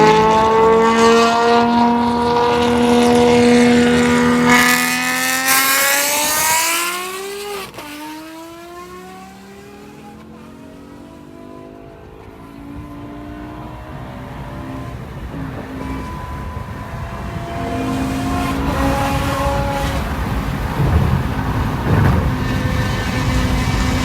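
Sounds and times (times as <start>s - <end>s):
car engine accelerating hard: 0.0s - 24.0s.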